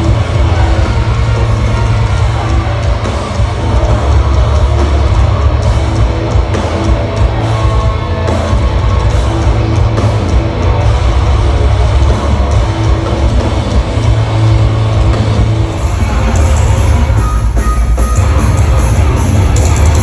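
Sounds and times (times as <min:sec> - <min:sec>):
distorted guitars: 0:00.0 - 0:20.0
drums: 0:00.0 - 0:20.0
heavy rock band playing: 0:00.0 - 0:20.0.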